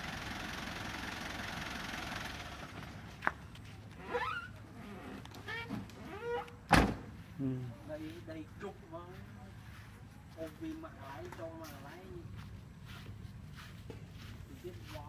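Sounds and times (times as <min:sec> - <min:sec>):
vehicle engine running: 0:00.0 - 0:04.0.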